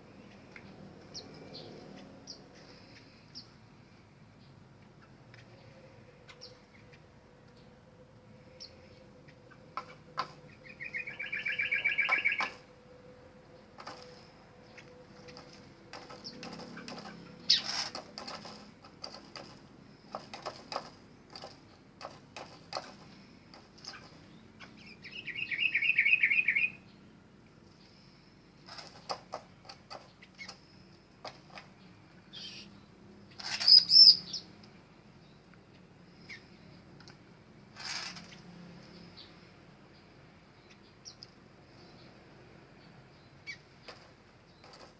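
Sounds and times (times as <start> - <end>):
birds chirping and calling: 4.4 - 7.7, 8.4 - 12.7, 13.5 - 27.0, 27.7 - 34.6, 35.2 - 37.1, 42.8 - 44.9
bird trill: 10.4 - 12.6, 16.1 - 17.8, 23.9 - 26.9, 32.3 - 32.7, 33.4 - 34.5
loud high bird call: 10.6 - 12.6, 25.0 - 26.8, 32.3 - 32.7.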